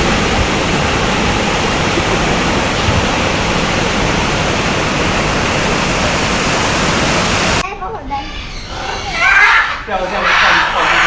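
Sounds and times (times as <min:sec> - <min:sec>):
falling water rushing: 0:00.0 - 0:07.6.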